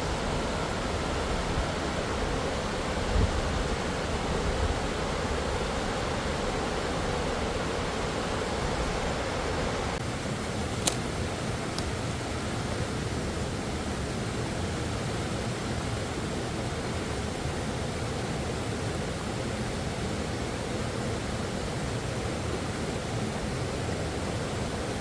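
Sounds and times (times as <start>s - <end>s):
sharp click: 10.8s - 11.1s.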